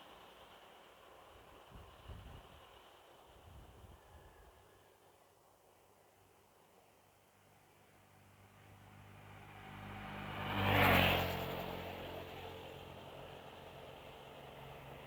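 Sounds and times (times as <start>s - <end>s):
vehicle passing by: 8.0s - 15.0s.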